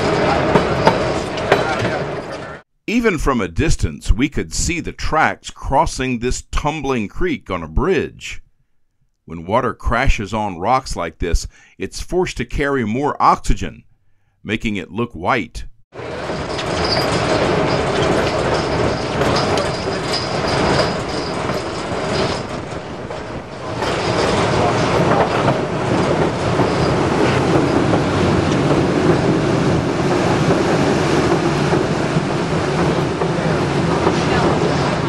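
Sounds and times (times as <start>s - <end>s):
high wheel squeal: 0.0s - 2.6s, 16.0s - 29.6s
train wheels rumbling on track: 0.0s - 2.6s, 16.0s - 35.0s.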